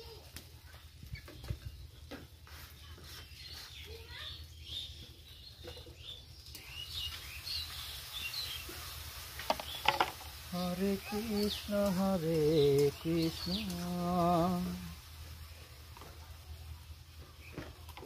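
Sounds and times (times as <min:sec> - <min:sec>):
small birds chirping: 0:00.0 - 0:18.0
low steady rumble: 0:10.6 - 0:18.0.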